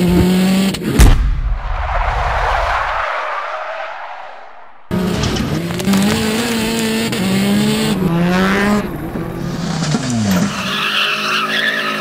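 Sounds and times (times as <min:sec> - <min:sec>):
car engine revving hard: 0:04.9 - 0:10.6
tyres squealing: 0:05.0 - 0:12.0.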